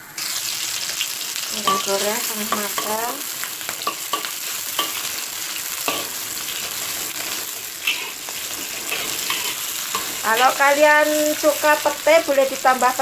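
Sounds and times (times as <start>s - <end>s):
food sizzling in hot oil: 0.0s - 13.0s
metal spatula scraping a wok: 5.8s - 11.6s.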